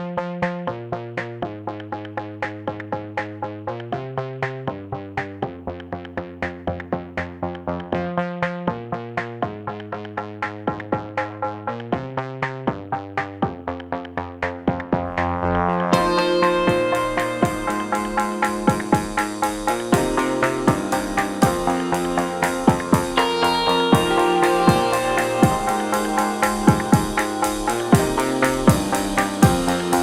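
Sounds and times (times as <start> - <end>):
bass line: 11.0 - 30.0
synthesizer notes pulsing: 13.7 - 30.0.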